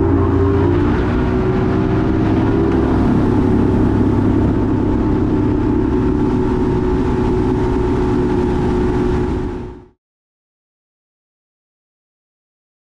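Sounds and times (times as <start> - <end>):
motor engine running: 0.0 - 10.0.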